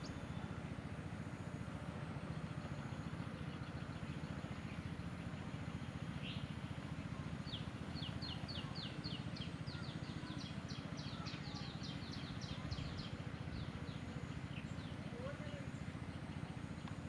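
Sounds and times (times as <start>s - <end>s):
bird chirping: 7.4s - 16.9s.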